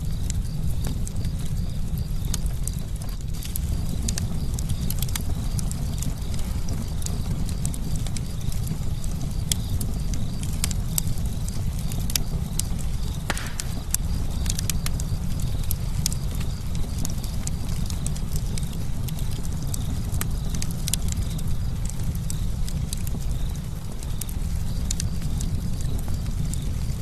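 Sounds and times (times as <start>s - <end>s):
campfire crackling: 0.0s - 27.0s
short fire hiss: 13.3s - 13.9s.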